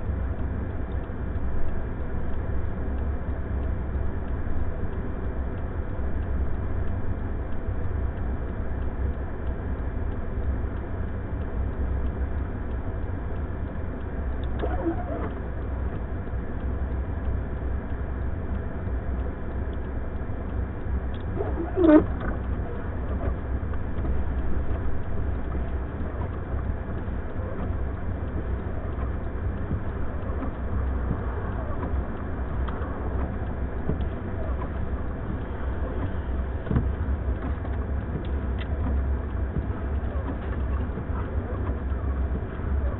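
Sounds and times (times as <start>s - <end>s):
blizzard wind: 0.0s - 42.9s
vehicle rumbling: 0.0s - 42.9s
squeaky bending cries: 21.4s - 22.1s.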